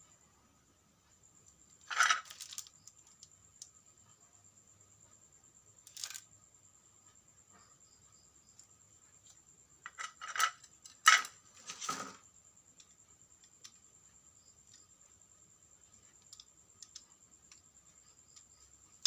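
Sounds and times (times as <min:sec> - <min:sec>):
small parts clicking and clinking: 0:01.4 - 0:03.8, 0:05.8 - 0:06.4, 0:08.5 - 0:15.2, 0:15.8 - 0:19.0.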